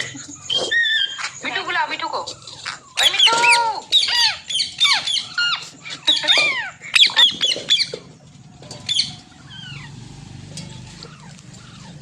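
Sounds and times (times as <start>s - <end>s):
parrot squawking: 0.0s - 8.1s, 8.9s - 10.0s.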